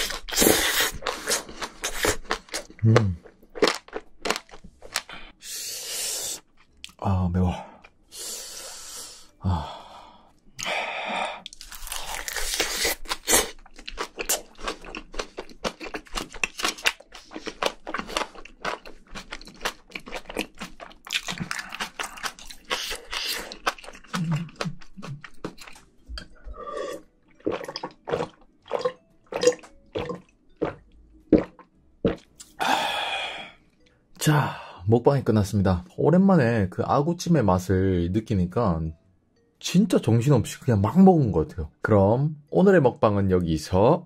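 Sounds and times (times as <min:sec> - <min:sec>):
crunchy chewing: 0:11.4 - 0:25.9
wet mouth clicks: 0:32.1 - 0:32.6.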